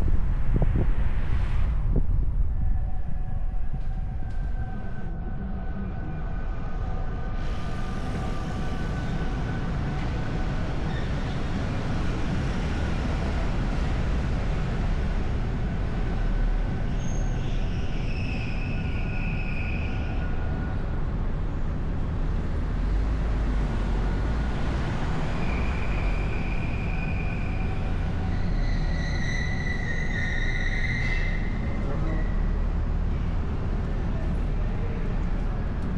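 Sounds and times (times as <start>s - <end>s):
wind buffeting microphone: 0.0s - 16.9s
car road noise rumble: 0.0s - 35.9s
faint whistling tones: 16.9s - 20.5s, 25.3s - 32.7s.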